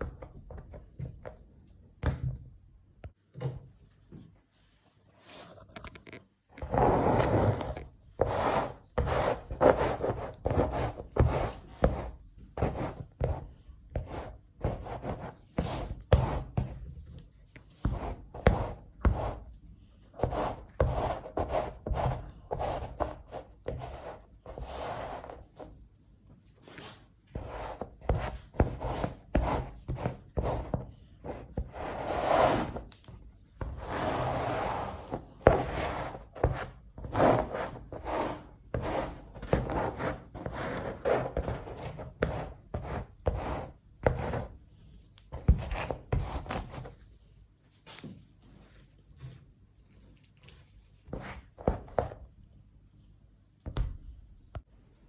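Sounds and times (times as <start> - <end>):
hand scraping and rubbing strokes: 6.7 - 16.8, 20.2 - 47.1.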